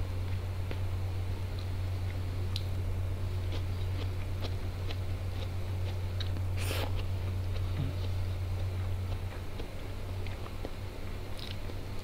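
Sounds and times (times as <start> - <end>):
low electrical hum: 0.0 - 12.0
chewing with mouth clicks: 3.5 - 12.0.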